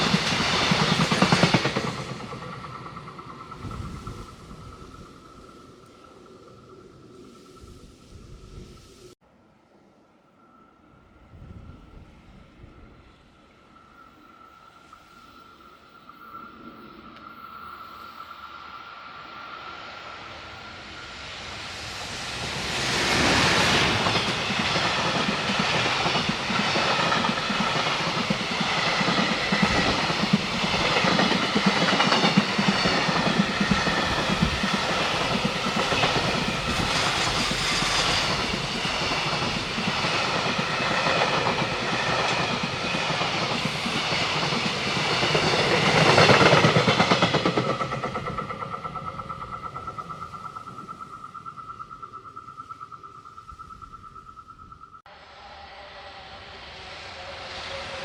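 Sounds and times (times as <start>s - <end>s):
freight train wheels clickety-clack: 0.0s - 5.6s, 20.8s - 51.2s.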